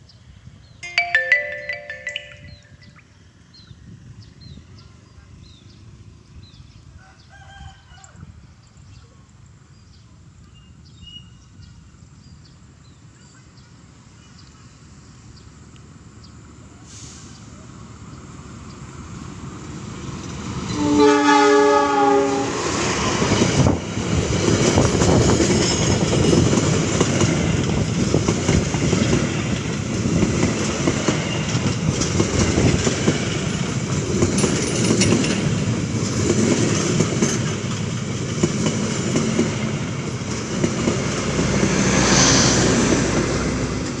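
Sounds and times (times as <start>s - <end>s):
train coaches rushing past: 0.8s - 2.9s, 16.9s - 44.0s
locomotive horn blast: 20.7s - 22.7s
wheels clattering over rail joints: 30.4s - 39.3s.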